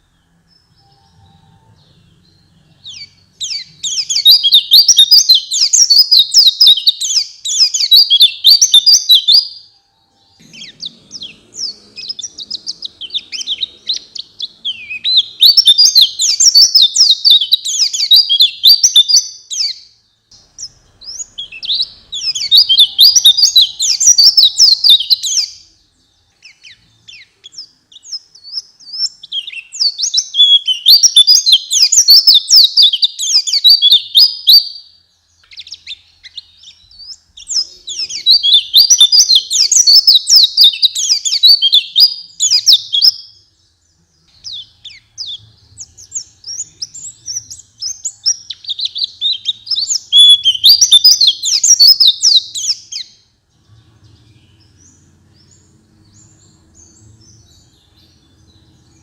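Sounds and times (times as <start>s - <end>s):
bird twittering chirps: 0.0s - 59.0s.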